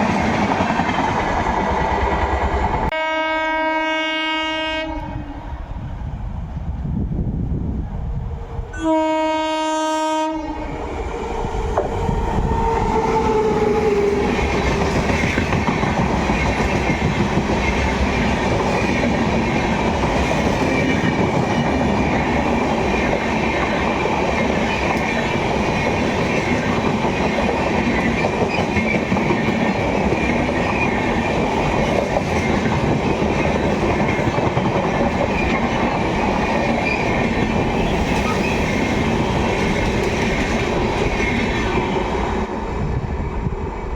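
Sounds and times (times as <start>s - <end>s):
electric locomotive whine: 0.0s - 43.9s
train coaches rumbling past: 0.0s - 43.9s
locomotive horn blast: 2.9s - 5.4s, 8.7s - 10.8s.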